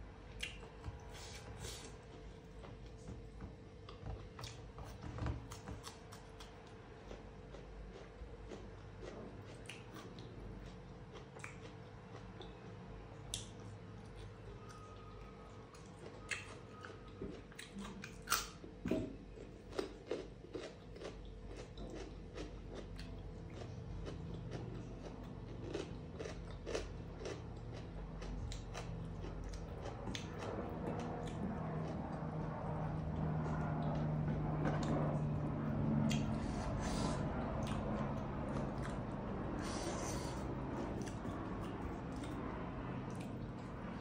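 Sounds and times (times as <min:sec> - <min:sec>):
crunchy biting and chewing: 0:03.8 - 0:12.7, 0:13.3 - 0:44.0.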